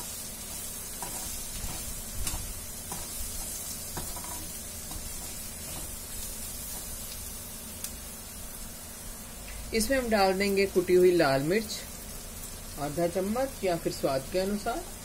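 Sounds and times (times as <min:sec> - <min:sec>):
metal spatula scraping a pan: 0:00.0 - 0:06.9
onions frying: 0:00.0 - 0:15.0.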